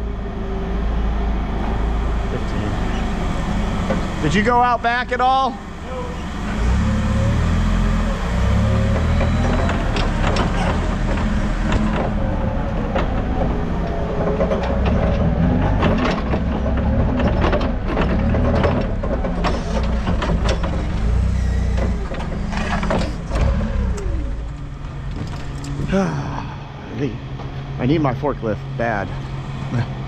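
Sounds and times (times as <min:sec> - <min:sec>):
vehicle engine running: 0:00.0 - 0:30.0
sharp knocks and clanks: 0:02.5 - 0:05.4, 0:08.6 - 0:25.9.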